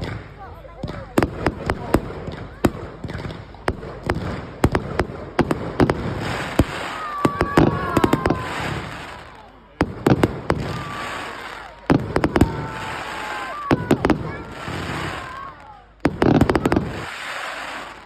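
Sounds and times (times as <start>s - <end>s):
fireworks bangs and crackles: 0.0s - 18.0s
fireworks falling whistles: 0.0s - 18.0s.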